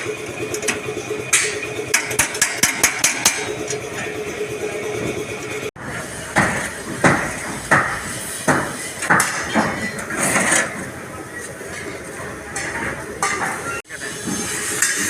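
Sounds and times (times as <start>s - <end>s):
hammer striking metal bumper: 0.0s - 4.1s, 5.8s - 10.2s.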